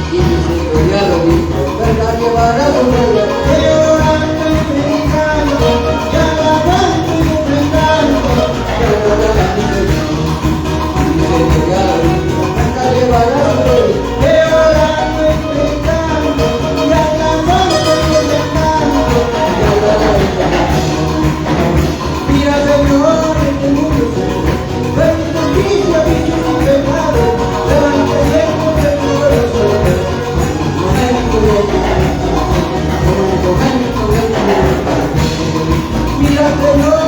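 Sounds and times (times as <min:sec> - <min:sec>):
people singing: 0:00.0 - 0:37.0
worship band playing: 0:00.0 - 0:37.0.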